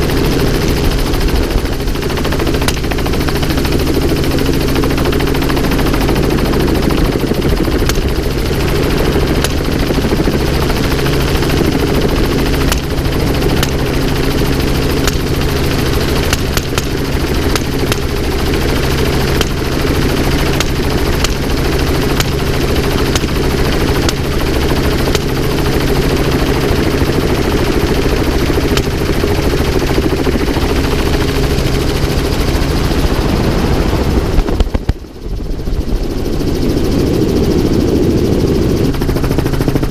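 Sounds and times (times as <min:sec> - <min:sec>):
helicopter turbine and rotor: 0:00.0 - 0:39.9
rifle shots: 0:14.8 - 0:18.5, 0:20.5 - 0:24.4.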